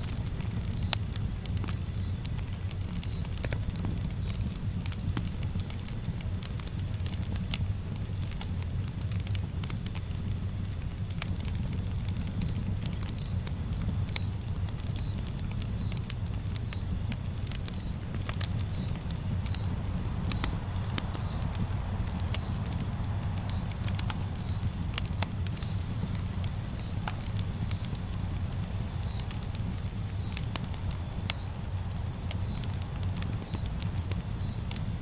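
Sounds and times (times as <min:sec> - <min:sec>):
campfire crackling and popping: 0:00.0 - 0:35.0
low rumble of burning fire: 0:00.0 - 0:35.0
faint high chirp: 0:17.6 - 0:28.0.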